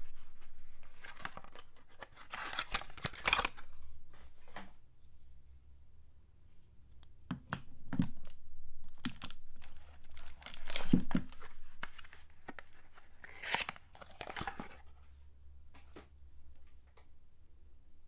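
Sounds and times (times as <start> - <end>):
packaging tearing and crinkling: 1.0 - 3.6, 9.0 - 12.2, 13.2 - 14.8.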